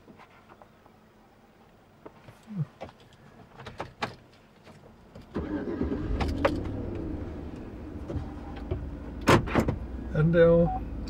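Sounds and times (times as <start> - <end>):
car engine starting and idling: 5.1 - 11.0.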